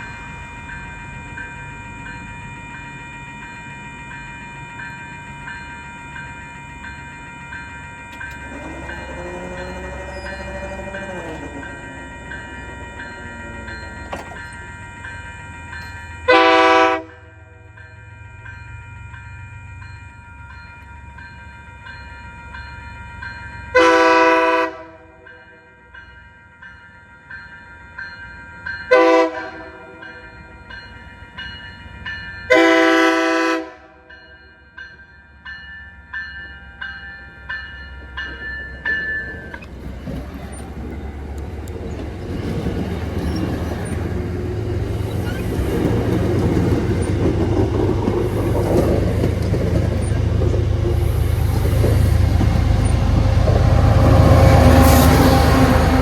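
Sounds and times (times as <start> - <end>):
bell ringing steadily: 0.0 - 24.5, 34.0 - 39.6
passing train rumble: 0.0 - 56.0
train air horn blasts: 8.3 - 14.4, 16.3 - 17.6, 23.8 - 25.2, 28.9 - 29.8, 32.5 - 34.1, 53.0 - 56.0.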